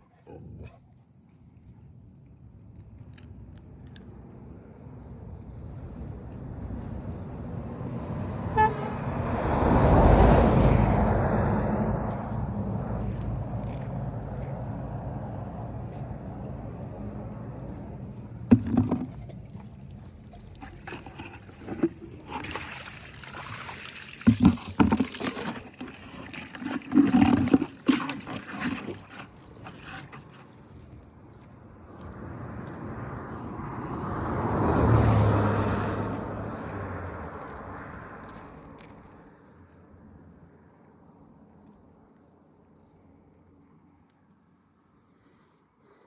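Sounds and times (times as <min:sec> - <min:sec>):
car driving past: 0:06.6 - 0:20.1, 0:32.0 - 0:38.8
car horn toot: 0:08.6 - 0:09.0
knocks and rustles: 0:18.5 - 0:19.6.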